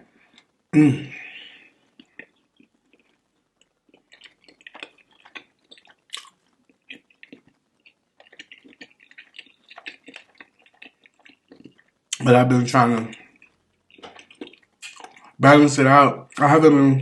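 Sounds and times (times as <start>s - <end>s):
chewing and lip smacking: 1.9s - 12.3s, 13.0s - 15.4s.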